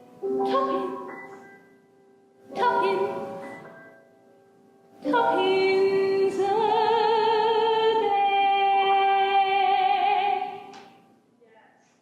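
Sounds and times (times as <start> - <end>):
piano chords: 0.0 - 8.0
woman singing with vibrato: 0.3 - 1.2, 2.5 - 3.4, 5.0 - 10.7.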